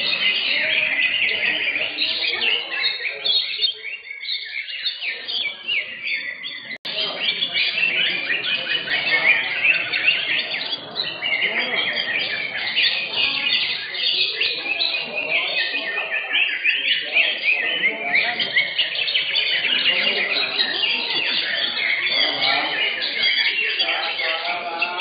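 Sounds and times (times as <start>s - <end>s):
birds singing chorus: 0.0s - 25.0s
people murmuring: 0.0s - 25.0s.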